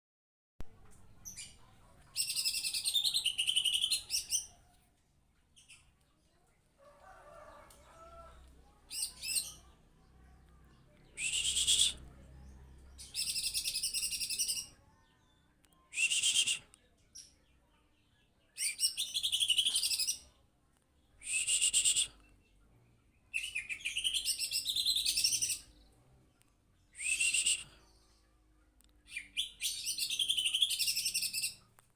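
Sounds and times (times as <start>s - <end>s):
songbird singing high phrases: 1.3s - 4.5s, 11.0s - 12.0s, 13.0s - 14.7s, 23.3s - 25.7s, 29.1s - 31.6s.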